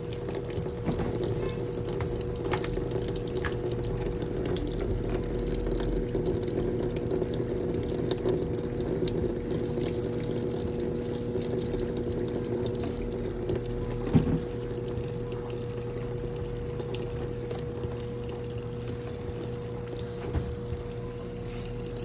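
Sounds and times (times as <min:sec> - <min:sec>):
washing machine pump humming: 0:00.0 - 0:22.0
knock: 0:14.1 - 0:14.5.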